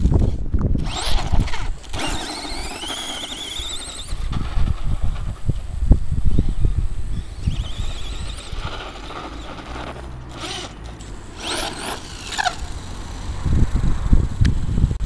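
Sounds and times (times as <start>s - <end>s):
electric motor whining: 0.2s - 14.6s
low rumble with thumps: 4.2s - 15.0s.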